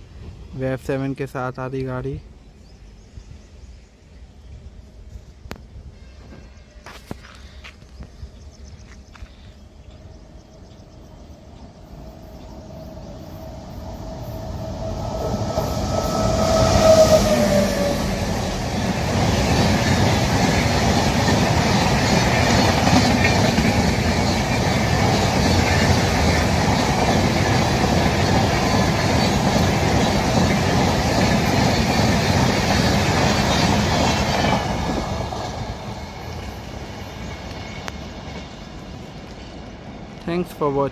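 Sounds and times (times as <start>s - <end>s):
train approaching: 0.0s - 40.9s
train horn: 5.8s - 7.2s, 14.8s - 18.6s.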